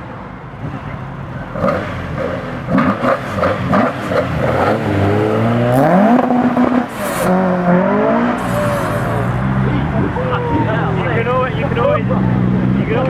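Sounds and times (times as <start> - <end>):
car engine revving and accelerating: 0.0 - 13.0.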